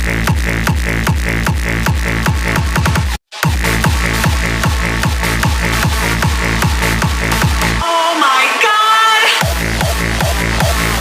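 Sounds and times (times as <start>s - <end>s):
pounding kick drum: 0.0s - 7.8s, 9.4s - 11.0s
hard techno music: 0.0s - 11.0s.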